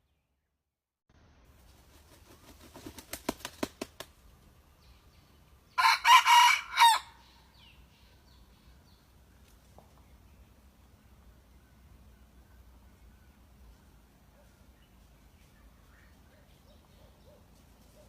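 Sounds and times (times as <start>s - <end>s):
rooster wings flapping: 1.6s - 4.2s
rooster crowing: 5.8s - 7.3s.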